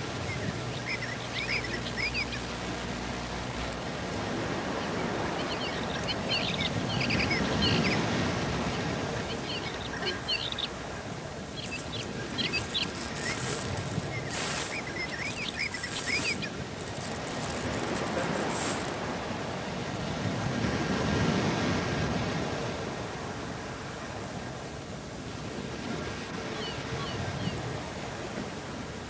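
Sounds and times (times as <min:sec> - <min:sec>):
steady hiss: 0:00.0 - 0:20.5
quick high chirps: 0:11.5 - 0:19.0
brief rustle: 0:11.6 - 0:19.0.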